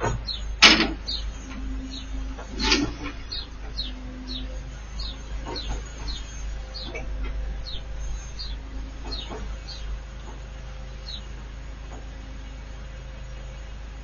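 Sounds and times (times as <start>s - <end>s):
bird chirping: 0.0s - 13.9s.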